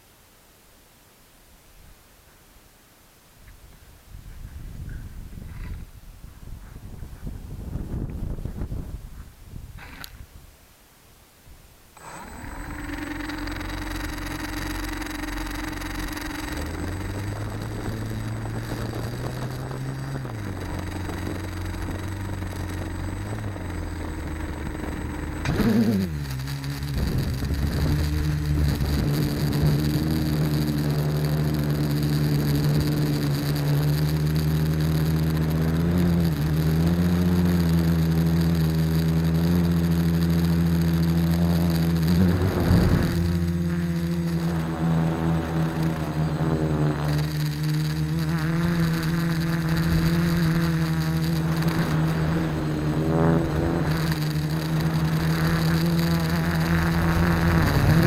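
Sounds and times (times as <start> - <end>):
quadcopter motors humming: 12.0 - 58.0.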